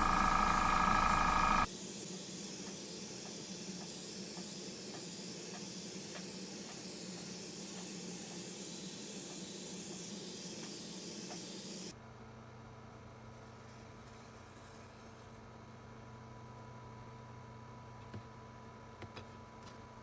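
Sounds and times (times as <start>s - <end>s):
faint low hum: 0.0s - 1.7s.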